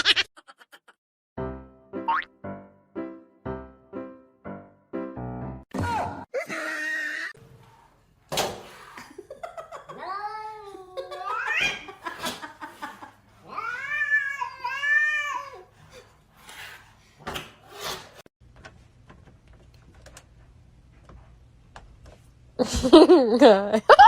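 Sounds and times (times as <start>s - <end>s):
cat meowing: 13.4s - 15.6s.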